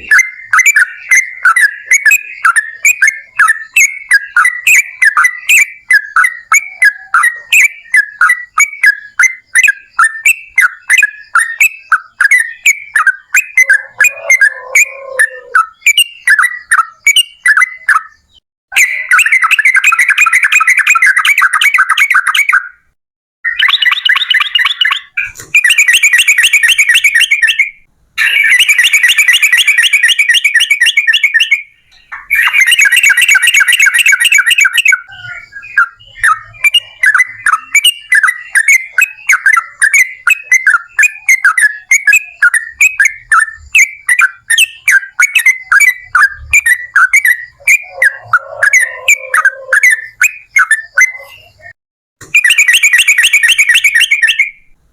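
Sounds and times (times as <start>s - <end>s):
bird trilling fast chattering notes: 13.0s - 16.5s, 23.5s - 31.6s, 32.2s - 51.8s.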